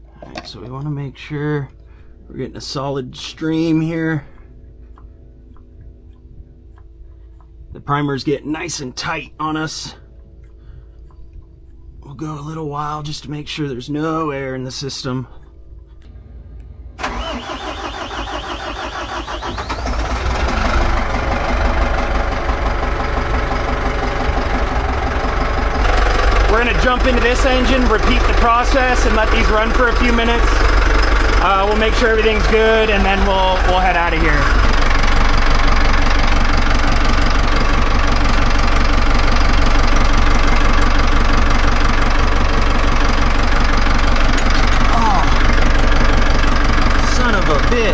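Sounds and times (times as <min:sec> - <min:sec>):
diesel engine cranking and starting: 0:17.0 - 0:47.9.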